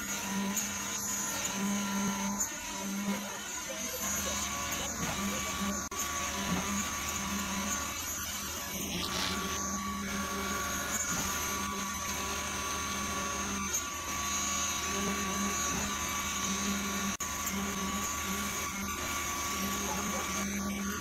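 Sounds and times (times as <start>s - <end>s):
motor whining: 0.0s - 21.0s.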